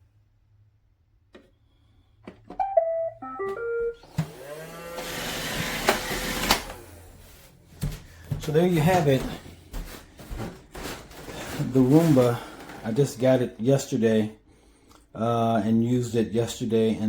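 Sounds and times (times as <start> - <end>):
beeping tune: 2.6 - 4.1
vacuum motor whirring: 3.5 - 7.4.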